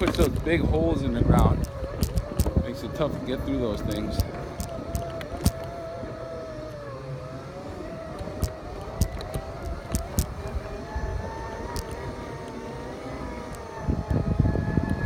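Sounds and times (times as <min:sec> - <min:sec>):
wheels knocking on rough ground: 0:00.0 - 0:05.8, 0:08.3 - 0:10.6
electric motors whining: 0:00.0 - 0:15.0.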